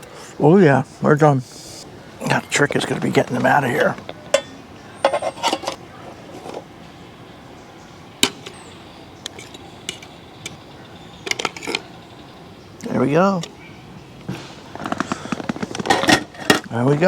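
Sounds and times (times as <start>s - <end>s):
metal utensils clinking on cookware: 2.3s - 6.6s, 9.2s - 10.6s, 11.2s - 12.0s, 14.8s - 16.8s.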